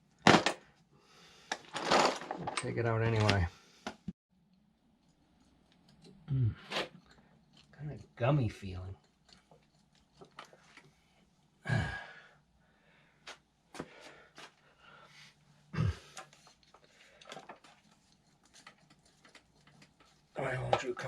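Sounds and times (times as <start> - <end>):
heavy exhales of effort: 11.6 - 12.3
hand tools clicking and tapping: 16.1 - 20.9.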